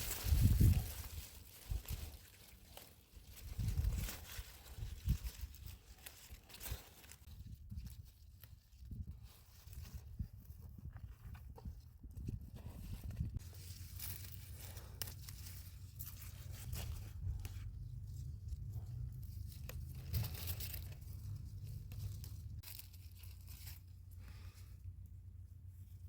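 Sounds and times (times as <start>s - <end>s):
crisp tearing and crackling: 0.0s - 8.8s, 13.4s - 24.4s.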